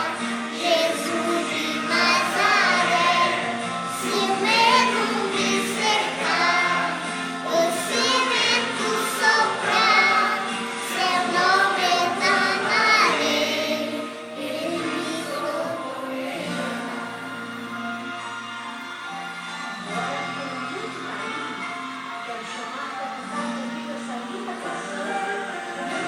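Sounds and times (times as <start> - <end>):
high voices singing with vibrato: 0.0 - 19.0
instrumental accompaniment: 0.0 - 26.0.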